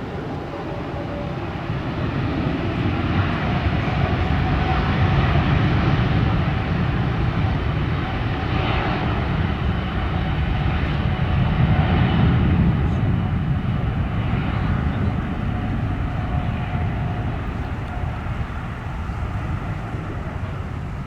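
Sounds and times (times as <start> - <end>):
jet engines at takeoff thrust: 0.0 - 21.0.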